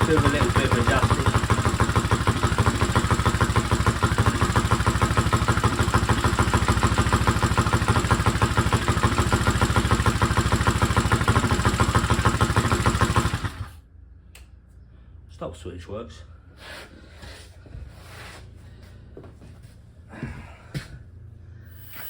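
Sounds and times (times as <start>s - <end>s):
dirt bike engine idling: 0.0s - 13.8s.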